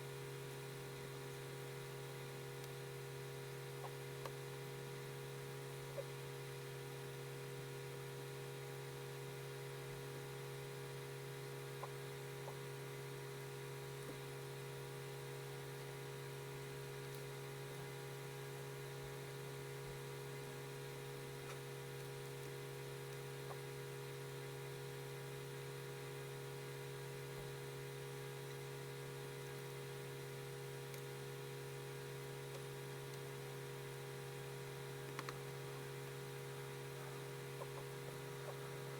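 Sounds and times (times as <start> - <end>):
electrical hum with hiss: 0.0 - 38.9
faint ticks: 35.0 - 35.5.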